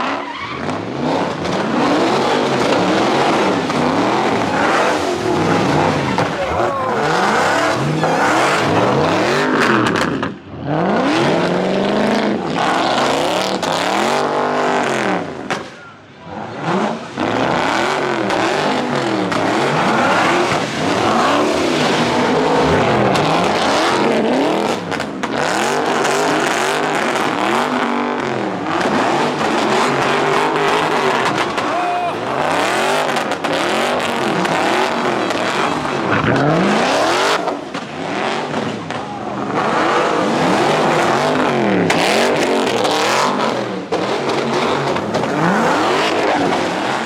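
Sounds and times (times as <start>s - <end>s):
car engine revving: 0.0s - 47.0s
tyre noise: 1.2s - 9.4s, 29.5s - 34.2s.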